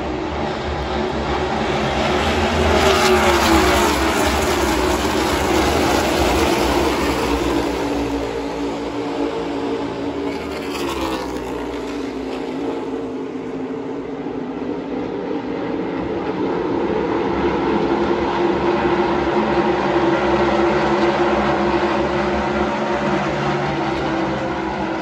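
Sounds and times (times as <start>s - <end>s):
race trucks passing at speed: 0.0s - 13.2s.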